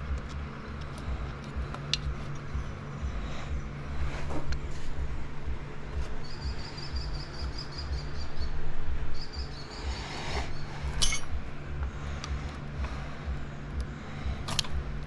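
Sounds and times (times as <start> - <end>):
steady low rumble: 0.0 - 15.0
bird trilling: 6.2 - 10.9.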